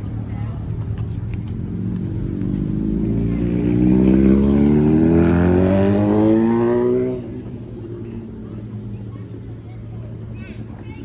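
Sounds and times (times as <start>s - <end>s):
car engine accelerating: 0.0s - 8.7s.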